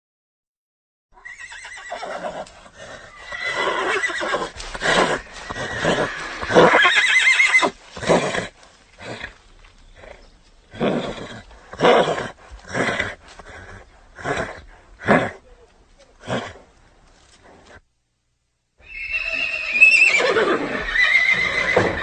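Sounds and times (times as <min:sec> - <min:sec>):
horse neighing: 0:01.2 - 0:09.4, 0:18.8 - 0:22.0.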